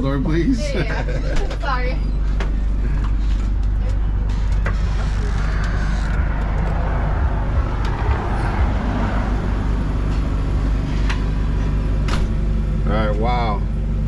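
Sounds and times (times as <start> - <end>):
steady low traffic rumble: 0.0 - 14.0
vehicle passing: 4.8 - 12.4.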